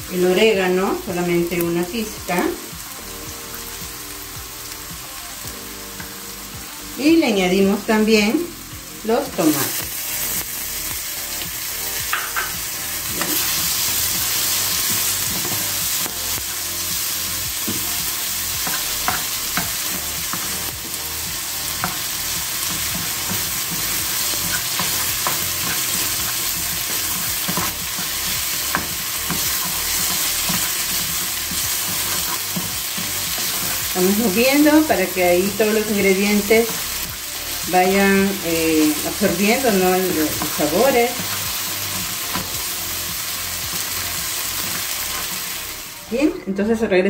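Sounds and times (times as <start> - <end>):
vegetables sizzling in oil: 0.0 - 46.7
spatula scraping and tapping pan: 12.1 - 13.6, 21.7 - 33.8.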